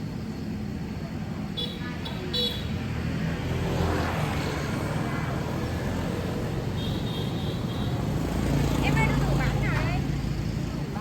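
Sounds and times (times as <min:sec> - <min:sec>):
motor vehicle passing by: 0:02.6 - 0:11.0.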